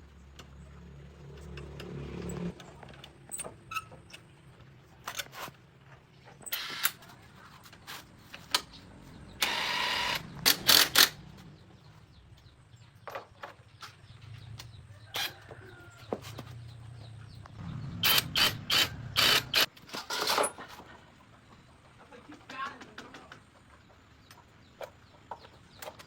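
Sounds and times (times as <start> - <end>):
vehicle engine running low: 0.0 - 4.6, 14.0 - 19.7
tools clicking and knocking: 10.4 - 11.4.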